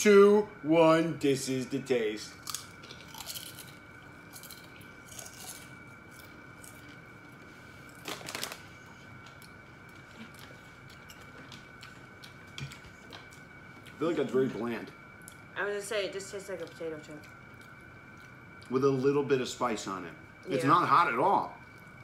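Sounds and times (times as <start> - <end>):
potato chips crunching: 2.4 - 7.0, 7.9 - 8.7.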